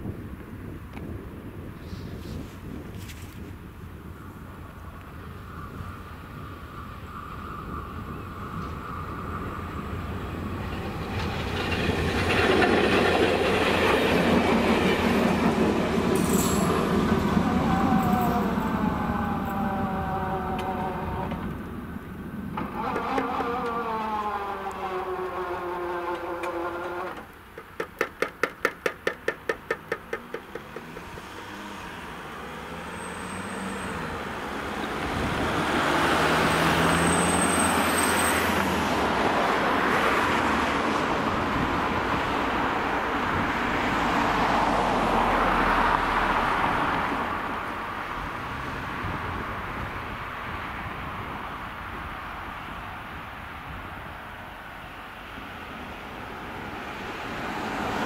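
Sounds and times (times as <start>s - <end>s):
road vehicles passing: 0.0s - 58.0s
train engine pulling away: 4.8s - 27.4s, 30.4s - 51.1s
sharp train wheel clacks: 10.6s - 17.3s, 22.5s - 31.6s.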